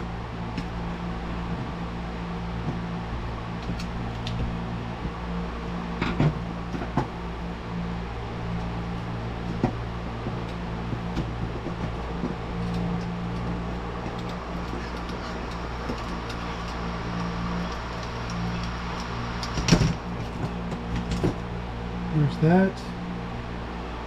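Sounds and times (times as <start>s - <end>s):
machine hum: 0.0s - 24.0s
small parts clicking and tapping: 11.2s - 21.4s.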